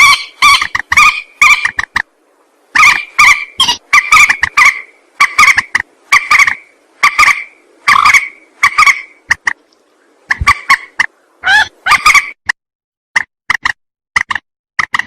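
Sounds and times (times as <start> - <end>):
bird harsh raspy call: 0.0 - 1.9, 2.8 - 9.2, 10.3 - 12.4.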